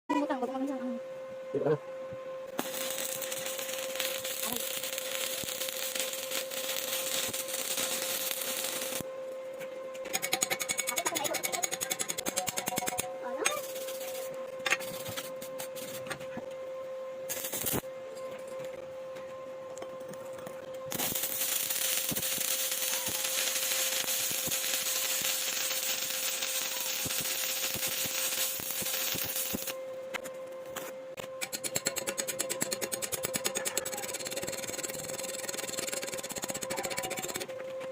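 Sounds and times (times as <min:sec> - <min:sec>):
constant hum: 0:00.1 - 0:37.9
arc welding crackling hiss: 0:02.5 - 0:09.1, 0:10.0 - 0:16.4, 0:17.3 - 0:17.9, 0:20.9 - 0:37.5.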